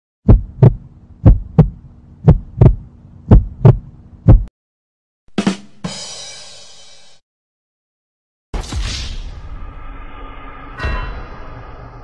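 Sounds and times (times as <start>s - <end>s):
heartbeat thumps: 0.2s - 4.5s
steady low hum: 0.3s - 4.5s
short hit: 8.6s - 12.0s
high ringing shimmer: 10.3s - 12.0s.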